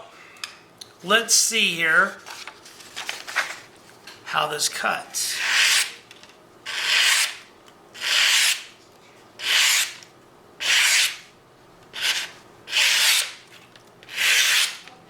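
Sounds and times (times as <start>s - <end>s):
knife shaving wood: 6.7s - 7.3s, 12.0s - 13.3s, 14.1s - 14.8s.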